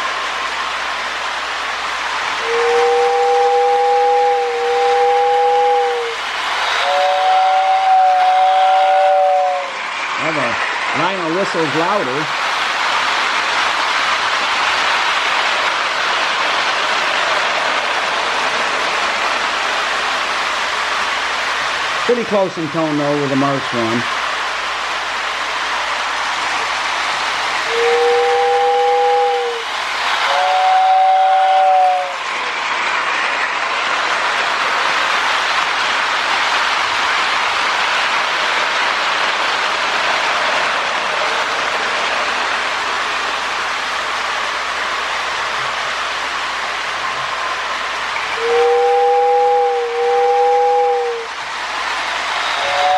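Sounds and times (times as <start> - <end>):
toy train rumbling on track: 0.0 - 52.9
toy train whistle blast: 2.4 - 9.8, 27.7 - 29.6, 30.3 - 32.2, 48.3 - 51.3, 52.4 - 52.9.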